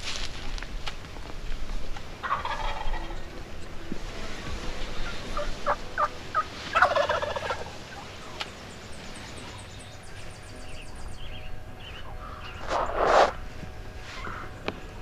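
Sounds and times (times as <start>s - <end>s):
wild turkey gobbling: 2.2s - 14.6s
short single turkey calls: 12.3s - 13.4s.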